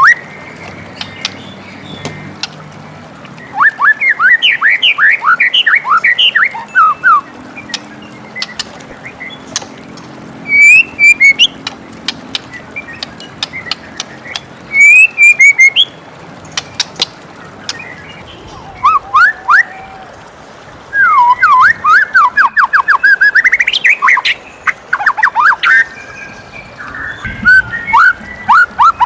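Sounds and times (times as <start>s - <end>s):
bird singing whistled phrases: 0.0s - 0.3s, 3.4s - 8.6s, 10.4s - 11.6s, 14.7s - 15.9s, 17.7s - 20.0s, 20.9s - 29.0s
scattered clicks: 11.6s - 14.5s.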